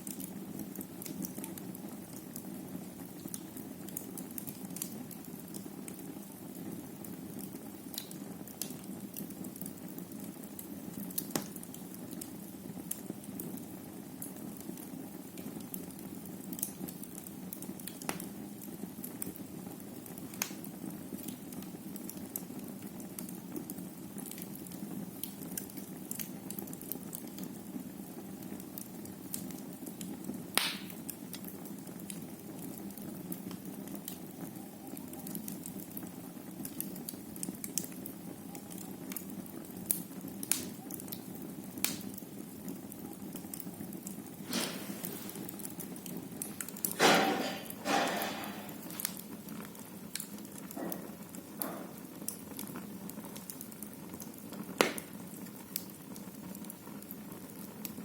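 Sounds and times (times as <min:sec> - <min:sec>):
fire crackling and popping: 0:00.0 - 0:58.0
fire flames rushing: 0:44.0 - 0:51.4.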